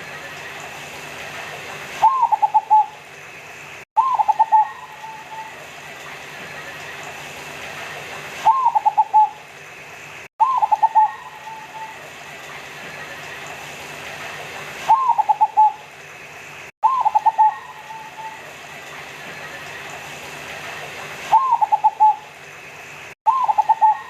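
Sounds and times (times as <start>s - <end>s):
dove cooing: 2.0s - 3.0s, 4.0s - 5.7s, 8.5s - 9.4s, 10.4s - 12.1s, 14.9s - 15.8s, 16.8s - 18.6s, 21.3s - 22.3s, 23.3s - 24.0s.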